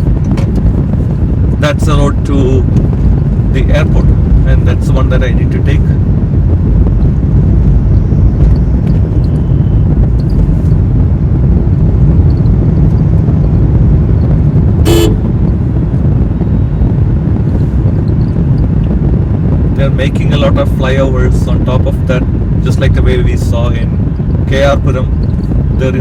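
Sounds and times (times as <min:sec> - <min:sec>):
road and wind noise: 0:00.0 - 0:26.0
vehicle horn toot: 0:14.8 - 0:15.3.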